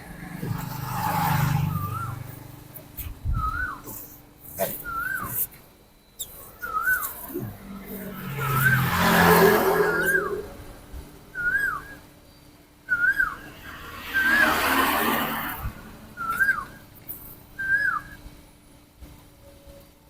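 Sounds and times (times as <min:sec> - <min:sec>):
rising and falling whistle: 0:00.9 - 0:02.3, 0:06.2 - 0:07.2, 0:07.8 - 0:10.6, 0:11.3 - 0:12.1, 0:12.9 - 0:15.6, 0:16.2 - 0:16.9, 0:17.6 - 0:18.2.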